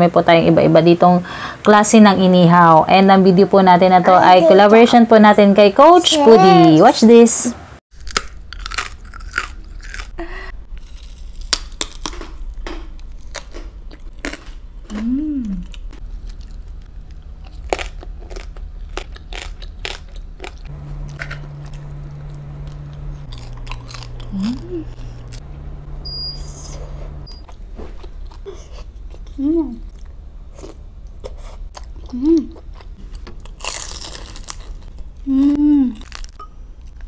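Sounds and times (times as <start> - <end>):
chewing and crunching food: 7.9 - 25.5, 27.4 - 37.0
low hum: 8.0 - 37.0
low held tones: 14.8 - 33.5.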